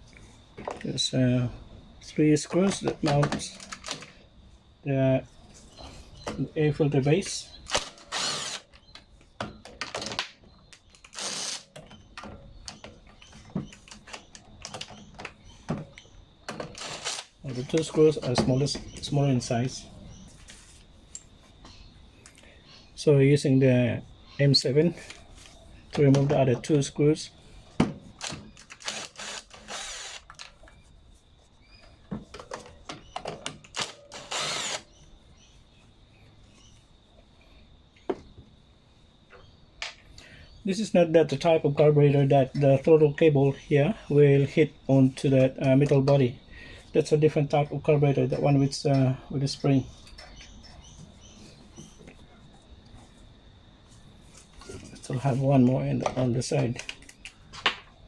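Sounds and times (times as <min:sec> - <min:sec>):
handling clicks and knocks: 0:02.4 - 0:04.2, 0:11.8 - 0:16.8, 0:17.5 - 0:19.8, 0:31.8 - 0:34.1
power driver spinning: 0:07.7 - 0:08.9, 0:16.7 - 0:17.9, 0:28.2 - 0:30.5, 0:33.8 - 0:34.9
scraping rustle: 0:20.2 - 0:21.6.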